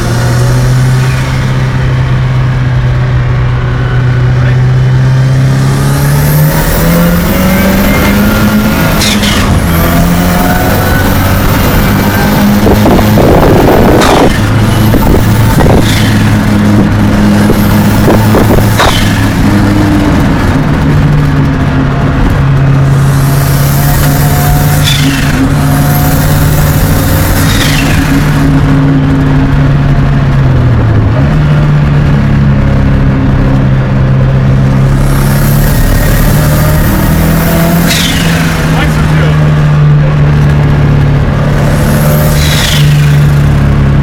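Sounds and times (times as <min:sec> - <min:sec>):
car engine running: 0:00.0 - 0:44.0
turbo whine: 0:00.0 - 0:44.0.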